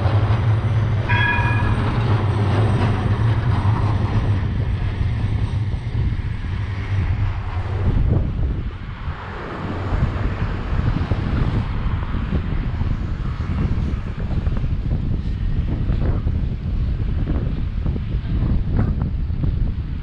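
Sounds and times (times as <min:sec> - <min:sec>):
tram rumbling past: 0:00.0 - 0:20.0
short tone: 0:01.1 - 0:02.1.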